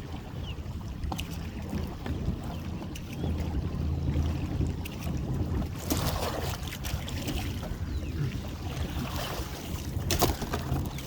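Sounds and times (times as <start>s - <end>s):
water splashing and dripping: 2.9s - 11.0s.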